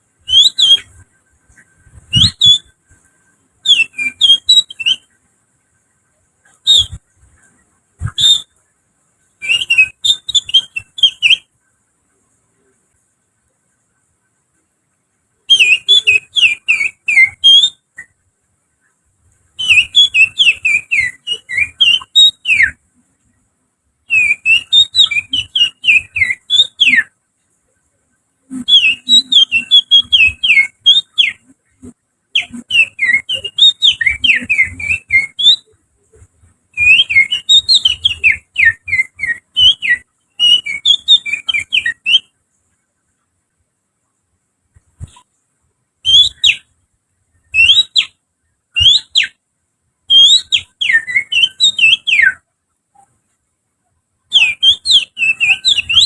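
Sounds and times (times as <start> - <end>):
person whistling through fingers: 2.1 - 2.7.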